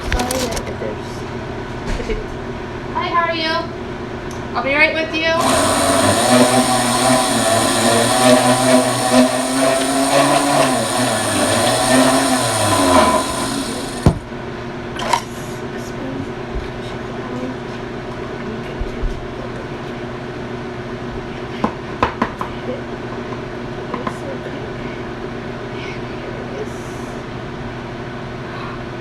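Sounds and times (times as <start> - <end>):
low machine hum: 0.0 - 20.0
spindle mixer running: 5.2 - 14.3.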